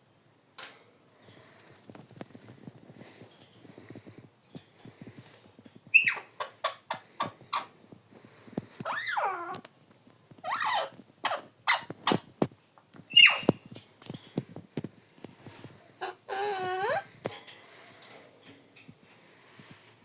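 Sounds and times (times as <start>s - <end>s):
parrot squawking and chirping: 5.9s - 7.8s, 8.8s - 9.6s, 10.4s - 12.3s, 13.1s - 13.7s, 16.0s - 17.2s.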